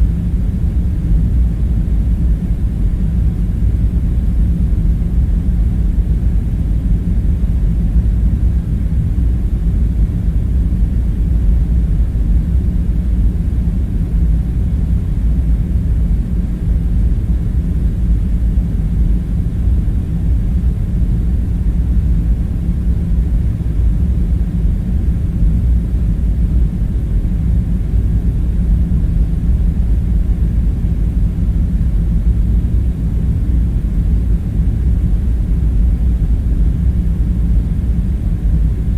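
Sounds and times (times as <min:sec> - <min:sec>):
low ventilation hum: 0:00.0 - 0:38.9.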